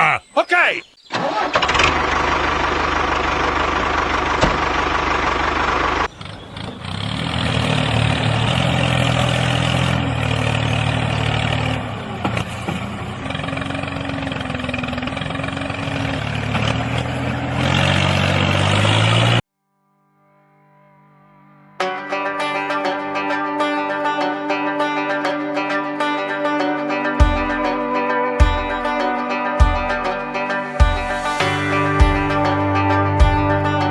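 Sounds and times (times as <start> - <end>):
engine running: 1.2 - 19.4.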